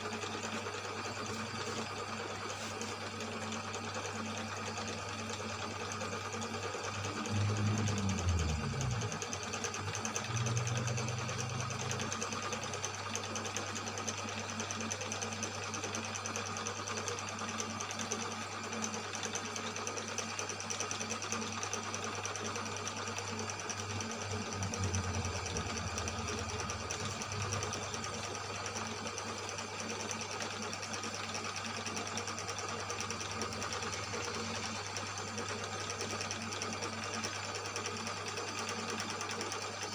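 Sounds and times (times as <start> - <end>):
boring machine motor hum: 0.0 - 39.9.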